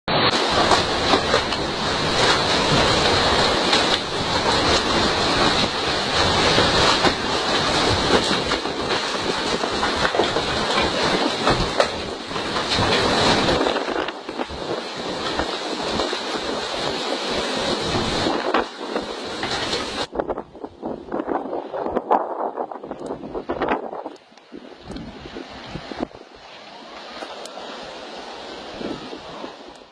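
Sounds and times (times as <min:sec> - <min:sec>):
tornado winds blowing hard: 0:00.1 - 0:29.9.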